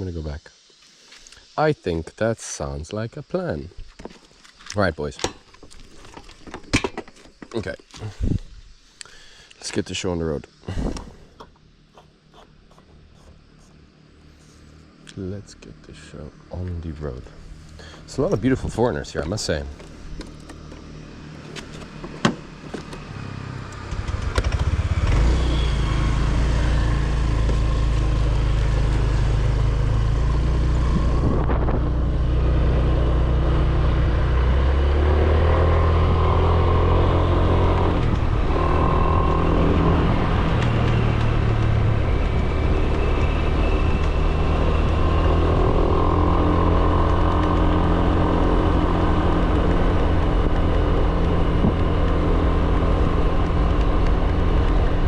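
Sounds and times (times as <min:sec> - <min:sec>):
vehicle engine running: 0:11.4 - 0:55.0.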